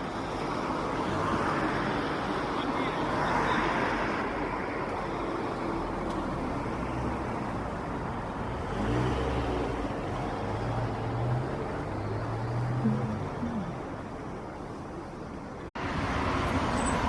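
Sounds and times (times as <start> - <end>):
passing cars rushing: 0.0 - 17.0
vehicle engine hum: 4.2 - 17.0.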